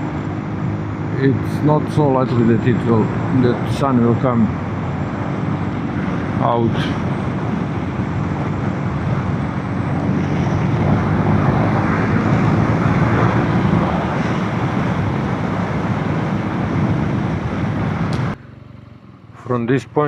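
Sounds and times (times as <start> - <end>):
motorcycle engine: 0.0 - 20.0
road noise: 0.0 - 20.0
wind rushing: 4.5 - 18.4.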